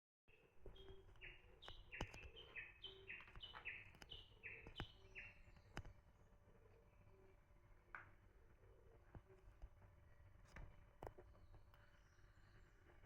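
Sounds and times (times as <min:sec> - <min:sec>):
small bird calling: 0:00.3 - 0:05.9
sharp clicks: 0:01.0 - 0:02.4.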